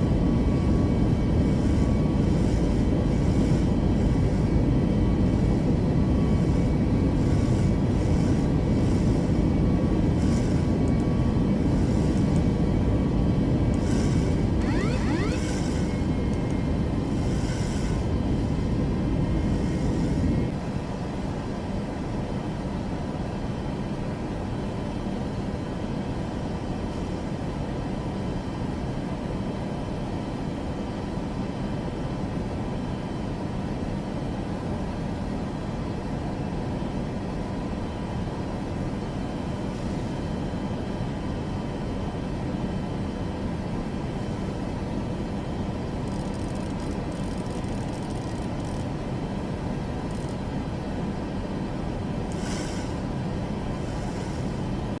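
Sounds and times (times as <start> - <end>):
aircraft engines rumbling: 0.0 - 55.0.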